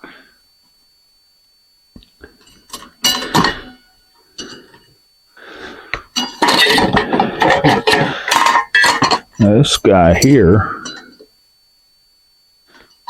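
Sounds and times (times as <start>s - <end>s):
metal parts clinking: 6.2s - 9.4s.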